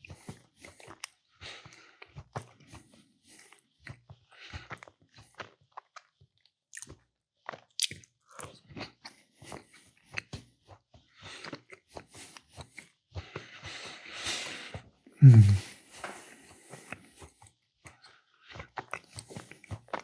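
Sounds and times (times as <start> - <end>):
close chewing and biting: 7.8 - 8.6.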